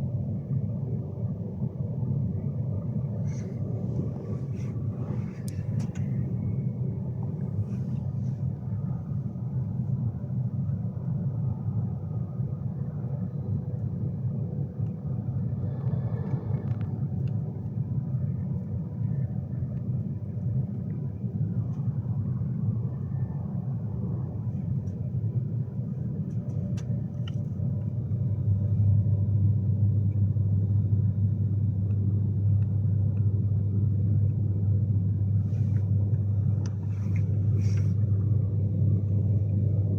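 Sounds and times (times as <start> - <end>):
deep train hum: 0.0 - 39.9
train cabin rumble: 15.1 - 19.4.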